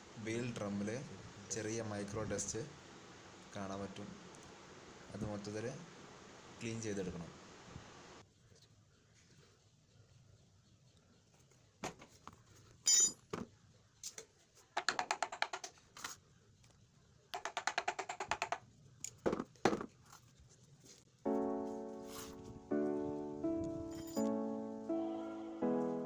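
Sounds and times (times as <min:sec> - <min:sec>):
background music: 0:21.3 - 0:26.0.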